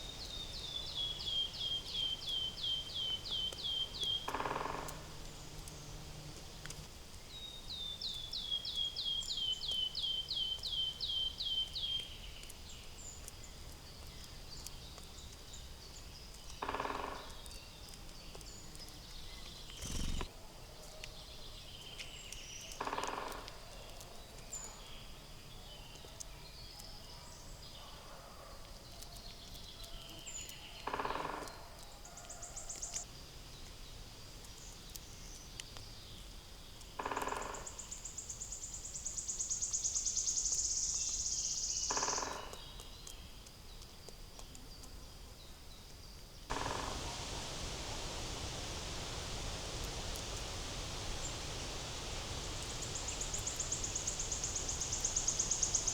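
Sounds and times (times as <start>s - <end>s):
harsh bird calls: 46.5s - 55.9s
high bird chirps: 46.5s - 55.9s
steady rushing noise: 46.5s - 55.9s.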